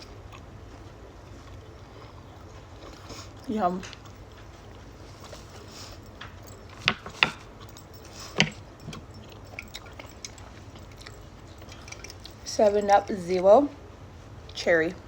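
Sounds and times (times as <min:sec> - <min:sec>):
person chewing food: 0:00.0 - 0:12.5.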